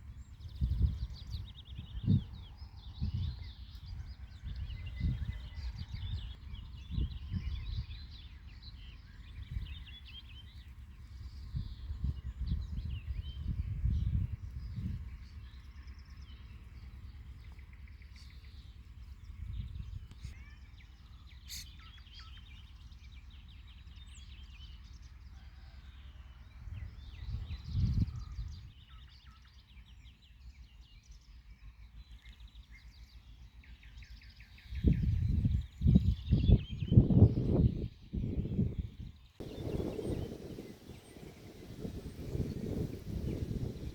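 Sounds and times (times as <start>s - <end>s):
small birds chirping: 0.0s - 24.8s, 26.9s - 43.9s
low rumbles: 39.4s - 43.9s
spring water murmur: 39.4s - 43.9s.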